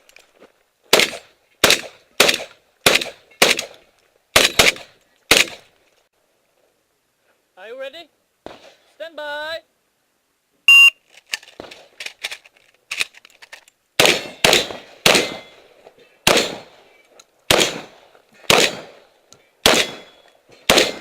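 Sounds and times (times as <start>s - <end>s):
loud shotgun shots: 0.9s - 3.8s, 4.4s - 5.6s, 14.0s - 15.6s, 16.2s - 16.8s, 17.5s - 19.0s, 19.6s - 21.0s
shot timer beep: 10.7s - 11.0s.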